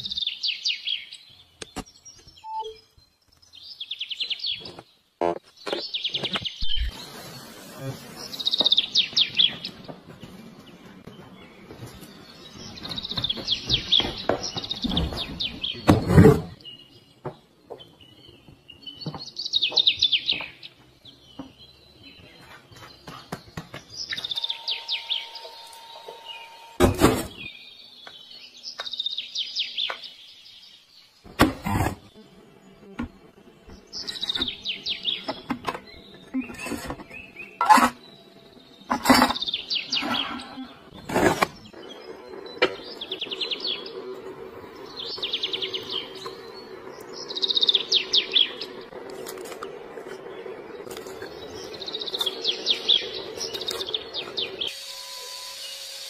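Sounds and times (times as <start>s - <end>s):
bird chirping in trilled bursts: 24.1s - 26.8s.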